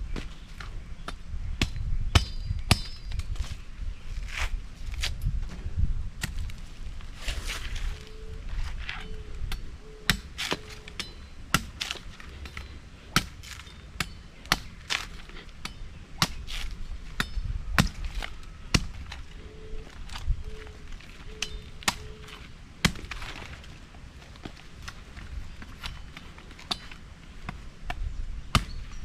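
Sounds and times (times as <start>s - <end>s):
machete chopping coconuts: 1.0s - 3.4s, 9.5s - 19.2s, 21.3s - 23.6s, 25.6s - 28.9s.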